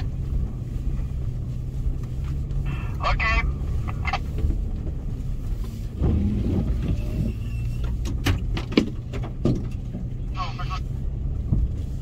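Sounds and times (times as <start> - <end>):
car engine running: 0.0 - 12.0
sharp knocks and clunks: 7.9 - 10.1.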